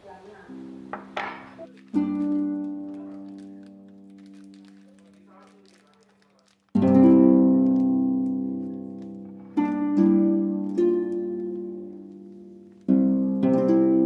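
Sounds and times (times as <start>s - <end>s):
slow plucked background music: 0.4s - 5.1s, 6.8s - 14.0s.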